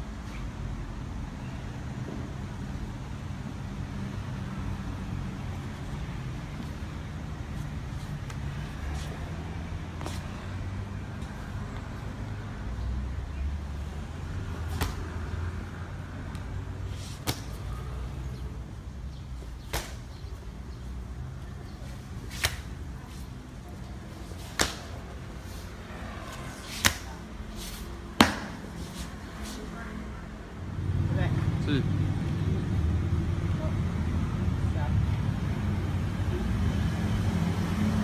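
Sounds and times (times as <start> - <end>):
sharp hand slaps: 14.7 - 15.1, 17.2 - 17.6, 19.7 - 20.1, 22.3 - 22.7, 24.5 - 25.0, 26.7 - 27.1, 28.2 - 28.6.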